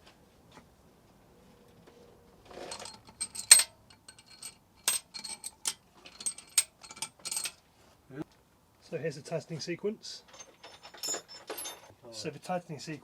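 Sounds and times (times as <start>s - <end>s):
metal bolts and washers clinking: 2.5s - 7.6s, 10.3s - 11.9s.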